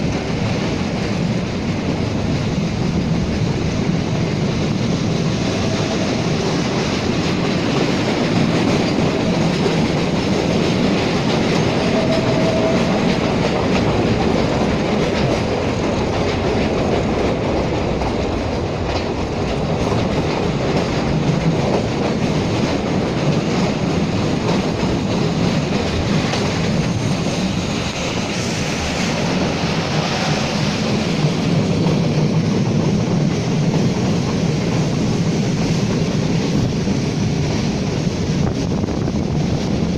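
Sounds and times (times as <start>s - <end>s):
train rumbling on track: 0.0s - 39.9s.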